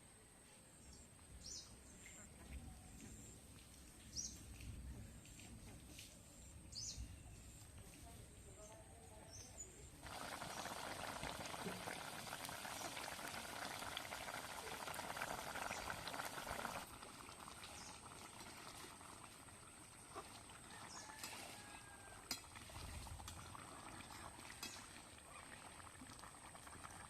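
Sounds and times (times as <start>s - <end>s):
gravy bubbling in a pot: 10.0s - 27.0s.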